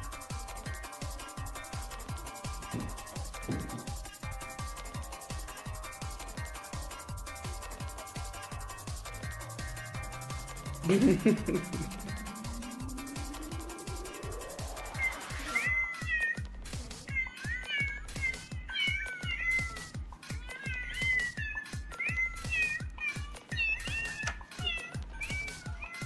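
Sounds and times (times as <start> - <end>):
background music with beat: 0.0 - 26.0
cat meowing: 14.8 - 26.0.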